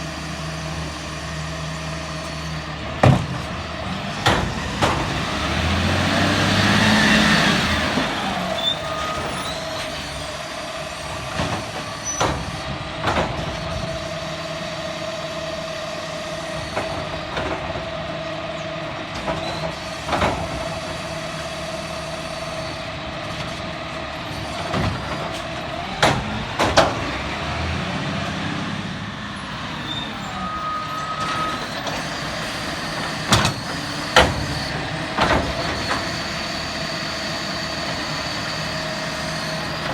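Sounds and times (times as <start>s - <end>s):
garbage truck running with whine: 0.0s - 39.9s
sharp knocks and bangs: 3.0s - 3.6s, 4.2s - 5.4s, 11.3s - 13.8s.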